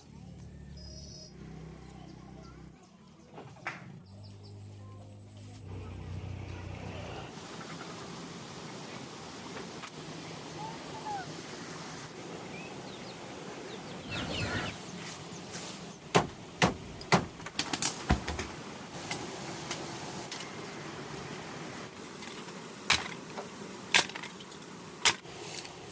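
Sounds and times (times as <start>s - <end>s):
bird chirp: 12.5s - 15.0s.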